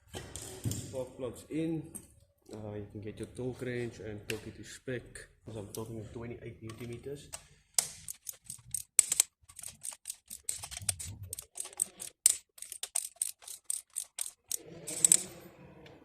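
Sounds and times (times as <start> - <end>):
ratchet wrench clicking: 7.8 - 15.2.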